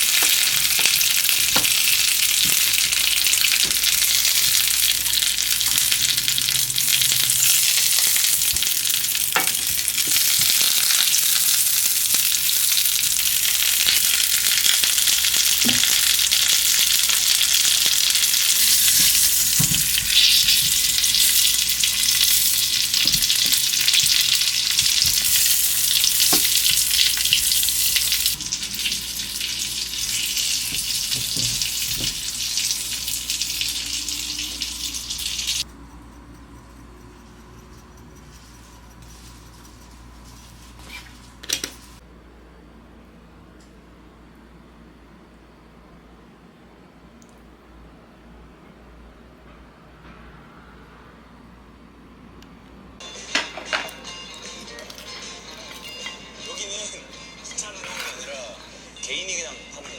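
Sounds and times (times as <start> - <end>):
food sizzling in hot oil: 0.0 - 35.7.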